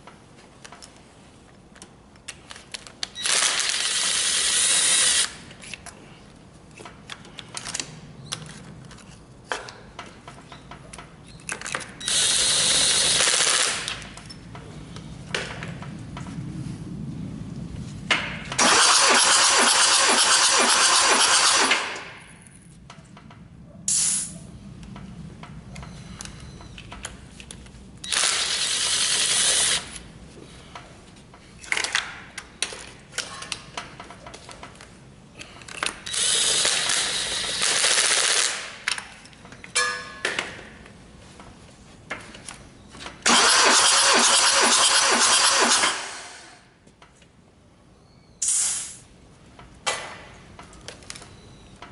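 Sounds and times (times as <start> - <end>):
diesel engine cranking: 18.5 - 22.2, 43.2 - 46.7.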